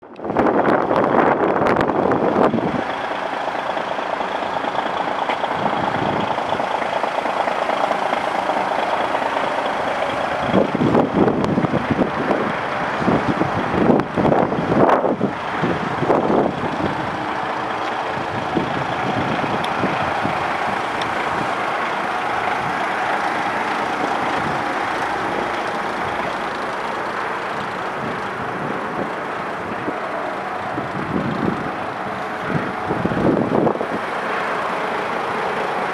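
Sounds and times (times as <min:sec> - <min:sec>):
diesel truck engine running: 0:00.0 - 0:35.9
loud irregular noise: 0:00.2 - 0:35.9.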